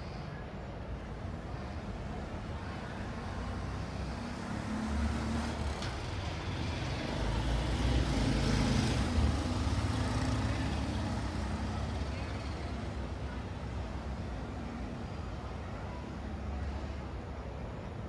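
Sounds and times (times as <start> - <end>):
vehicles passing: 1.9 - 14.2.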